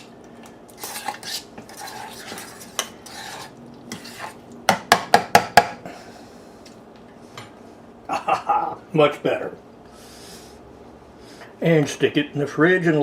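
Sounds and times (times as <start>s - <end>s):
utensil stirring in a bowl: 0.7s - 4.6s.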